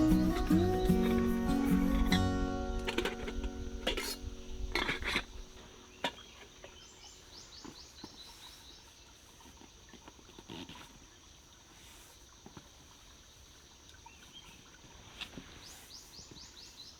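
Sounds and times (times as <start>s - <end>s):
acoustic guitar strum: 0.0s - 6.2s.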